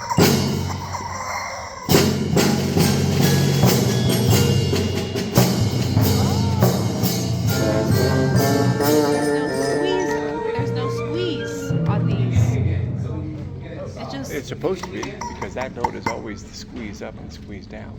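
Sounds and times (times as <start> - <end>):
percussion beat: 0.0 - 16.5
wind instruments: 1.9 - 12.6
band playing lively music: 1.9 - 15.2.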